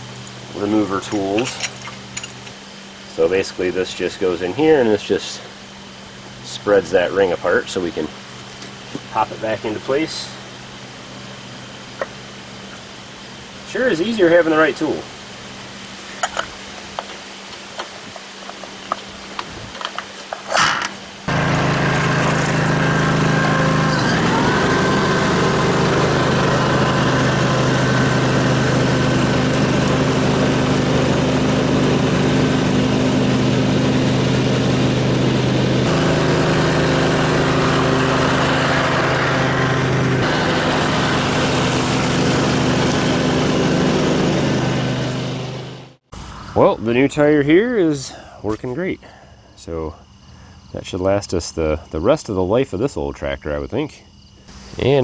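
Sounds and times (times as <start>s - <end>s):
lawn tractor engine running: 18.5s - 46.1s.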